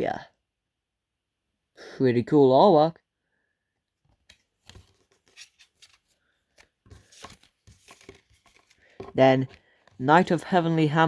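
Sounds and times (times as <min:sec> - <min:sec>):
trading cards clicking and rustling: 0:04.2 - 0:10.0.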